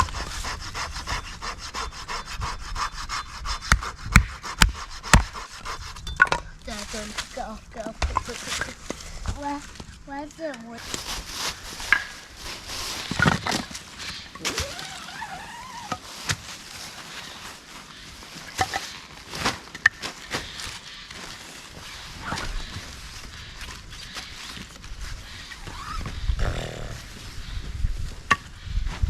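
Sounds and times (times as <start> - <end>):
rustling dry leaves: 6.6 - 29.0.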